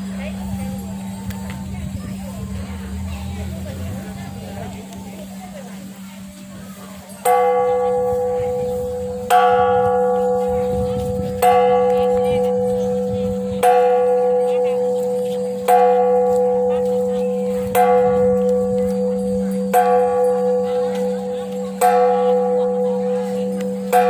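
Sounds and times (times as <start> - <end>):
temple bell ringing: 0.0 - 24.0.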